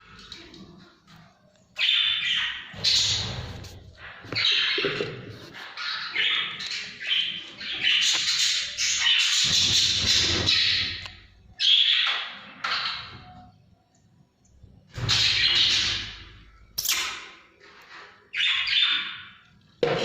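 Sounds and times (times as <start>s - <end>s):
bird chicks scratchy hissing calls: 2.8s - 4.6s.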